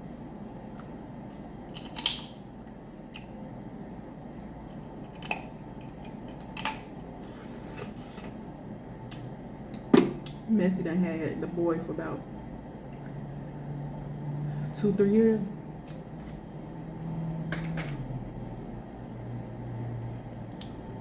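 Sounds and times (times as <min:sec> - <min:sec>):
shellfish shells cracking: 0:01.7 - 0:02.4, 0:05.0 - 0:06.9.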